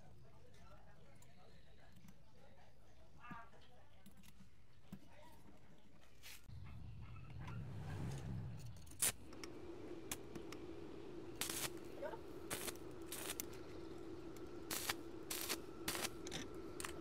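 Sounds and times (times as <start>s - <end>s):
faint steady hum: 6.5s - 17.0s.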